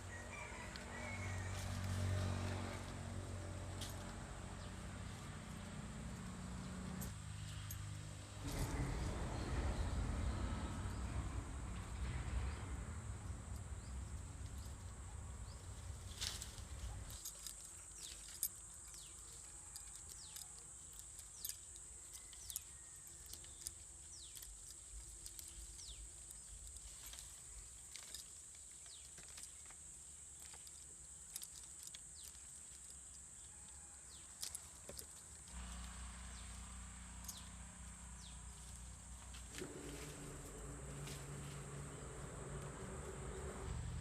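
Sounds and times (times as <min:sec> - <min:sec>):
low rumble: 0:08.4 - 0:17.1
high insect drone: 0:08.4 - 0:44.0.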